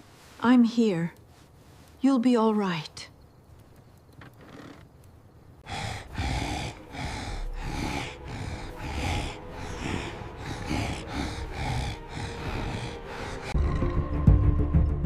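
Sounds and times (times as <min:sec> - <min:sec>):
horse breathing heavily: 0:05.6 - 0:13.7.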